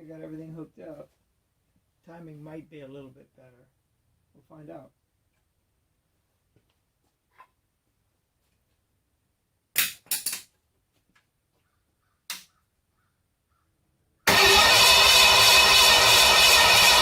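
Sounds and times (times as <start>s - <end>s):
engine popping: 14.3s - 17.0s.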